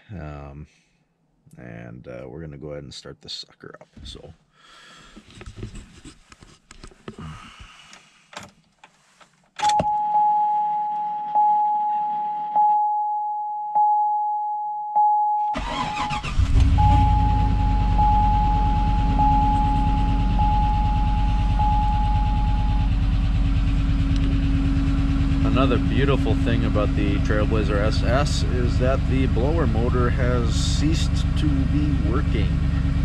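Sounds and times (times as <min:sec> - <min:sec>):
dash warning chime: 0:12.6 - 0:15.6, 0:16.8 - 0:23.1
engine cranking and idling: 0:15.6 - 0:33.0.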